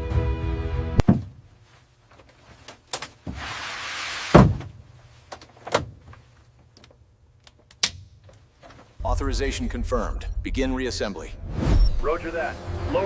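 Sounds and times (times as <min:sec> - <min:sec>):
heavy clunks and knocks: 0:01.0 - 0:01.4, 0:04.3 - 0:04.8
loud thud: 0:01.0 - 0:01.4.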